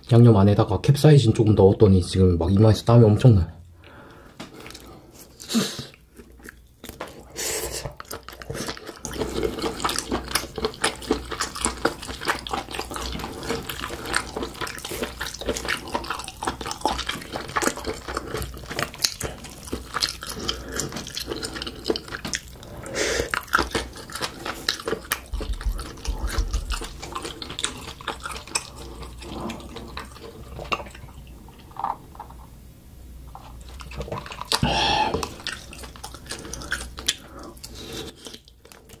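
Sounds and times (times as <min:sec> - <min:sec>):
wet chewing and mouth clicks: 0:04.4 - 0:32.4, 0:33.3 - 0:39.0.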